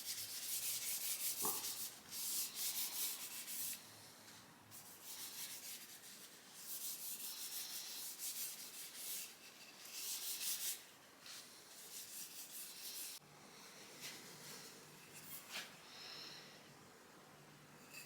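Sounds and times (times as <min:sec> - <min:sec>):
hand rubbing wooden handle: 0:00.0 - 0:03.8, 0:04.9 - 0:13.2.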